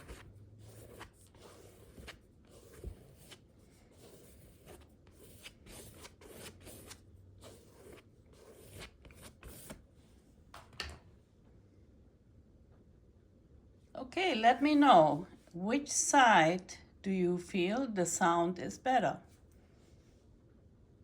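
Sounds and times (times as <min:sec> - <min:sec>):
palette knife scraping paper: 0:00.0 - 0:09.8.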